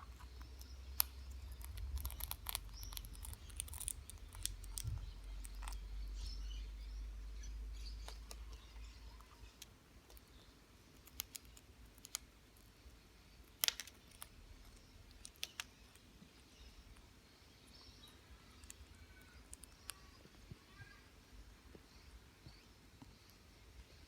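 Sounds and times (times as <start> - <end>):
parrot crunching chips: 0.1 - 5.8.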